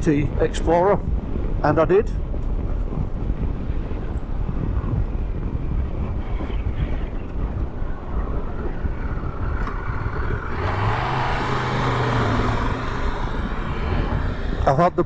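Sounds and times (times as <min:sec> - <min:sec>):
wind and road rumble: 0:00.0 - 0:15.0
motorcycle engine running: 0:03.7 - 0:14.7.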